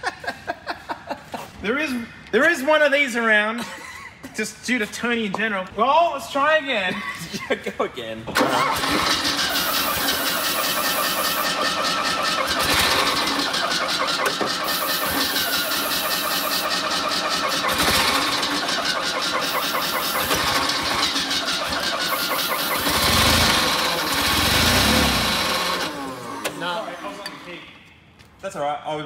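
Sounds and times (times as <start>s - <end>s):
car engine cranking and firing: 8.4s - 27.4s.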